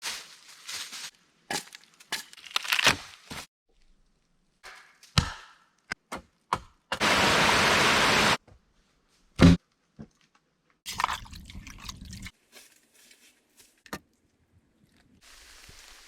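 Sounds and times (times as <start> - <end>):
wood cracking and being chopped: 1.5 - 3.5, 4.7 - 7.0.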